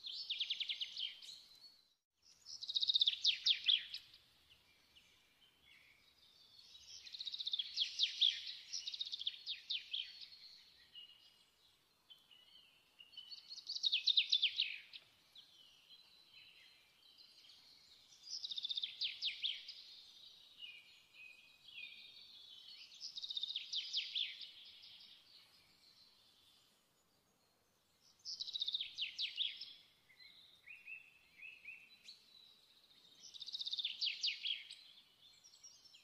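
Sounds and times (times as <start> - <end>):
soft bird twittering: 0.0 - 36.0.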